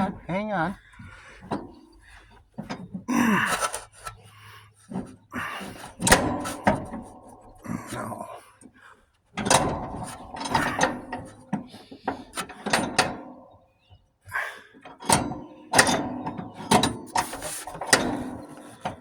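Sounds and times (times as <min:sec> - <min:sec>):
metal parts clanking and rattling: 0:01.4 - 0:04.2, 0:04.9 - 0:08.3, 0:09.4 - 0:13.7, 0:14.8 - 0:19.0.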